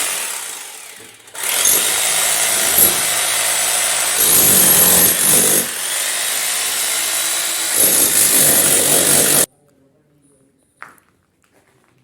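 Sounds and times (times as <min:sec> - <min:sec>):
hammer drill breaking into masonry: 0:01.1 - 0:09.5.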